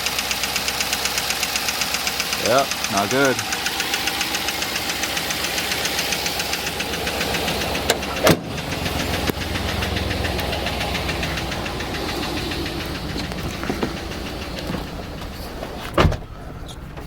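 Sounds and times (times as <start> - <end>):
engine running with lifter tick: 0.0 - 17.0
sharp clicks: 7.8 - 15.3.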